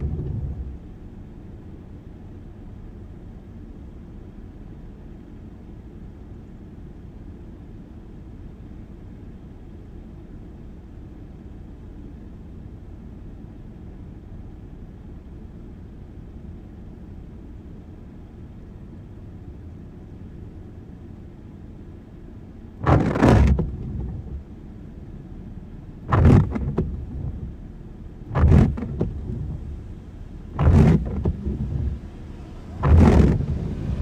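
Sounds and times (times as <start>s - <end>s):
windscreen wipers sweeping: 0.0s - 3.9s, 19.0s - 34.0s
car driving in rain: 0.0s - 34.0s.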